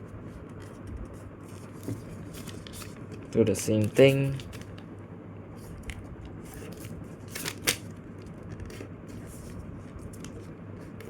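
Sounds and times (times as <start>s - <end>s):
paper rustling and creasing: 0.3s - 4.8s, 5.6s - 11.0s
sharp paper crinkle: 1.4s - 4.8s, 6.5s - 10.5s.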